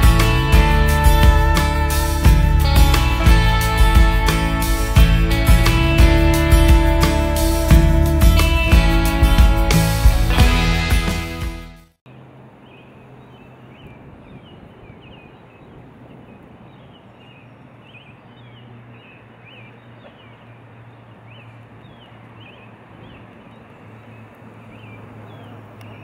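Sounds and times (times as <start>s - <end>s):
music track: 0.0s - 11.9s
bird chirping: 12.6s - 26.0s.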